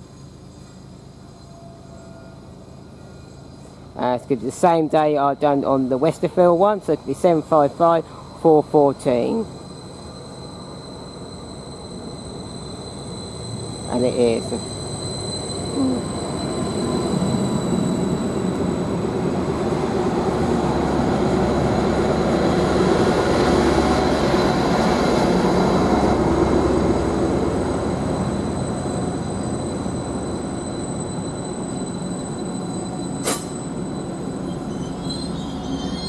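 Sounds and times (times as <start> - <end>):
train diesel engines slowing: 0.0 - 36.0
steady high whine: 4.8 - 35.6
sharp click: 33.2 - 33.5.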